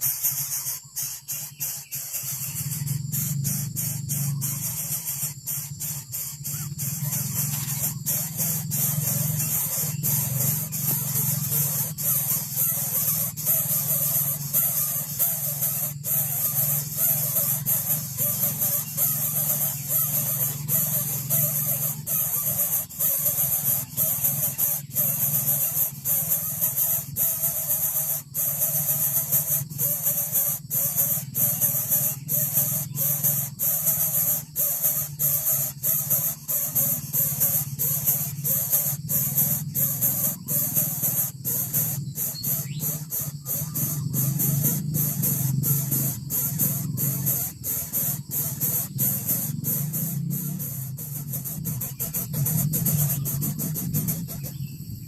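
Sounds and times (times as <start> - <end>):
bird chick calling: 0.0 - 55.0
steady loud hiss: 0.0 - 55.0.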